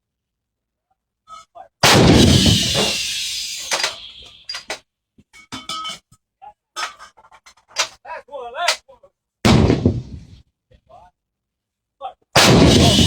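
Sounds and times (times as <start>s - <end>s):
howitzer blast: 1.8s - 4.8s, 12.4s - 13.0s.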